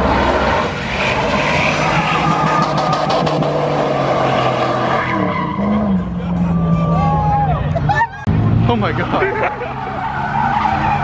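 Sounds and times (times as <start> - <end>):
car engine at high revs: 0.0 - 6.0.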